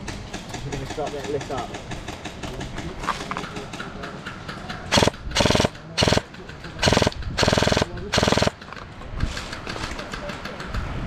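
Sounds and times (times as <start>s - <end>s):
airsoft gun firing bursts: 4.9s - 8.7s.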